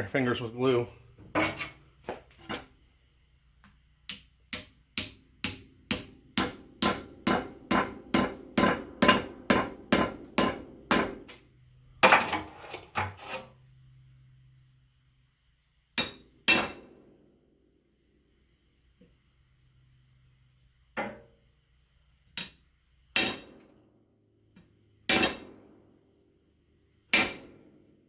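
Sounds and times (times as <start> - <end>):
hammer striking wedge: 4.1 - 11.4, 25.1 - 25.5, 27.2 - 27.6.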